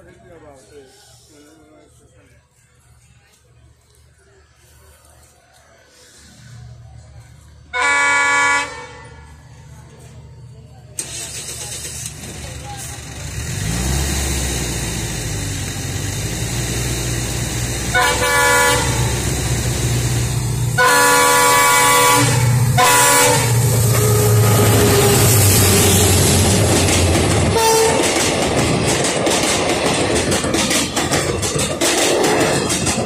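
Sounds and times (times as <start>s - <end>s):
train rumbling: 2.1s - 33.0s
train horn blasts: 7.7s - 9.4s, 17.9s - 19.2s, 20.8s - 26.2s, 27.5s - 28.1s
wheels clattering over rails: 22.6s - 33.0s.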